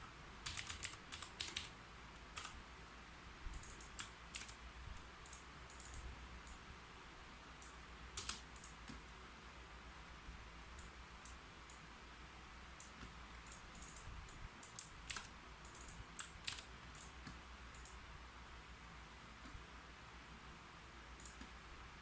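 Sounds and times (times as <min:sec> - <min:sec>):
keyboard typing: 0:00.4 - 0:02.6, 0:03.5 - 0:04.6, 0:05.2 - 0:06.6, 0:07.6 - 0:09.0, 0:12.8 - 0:18.0.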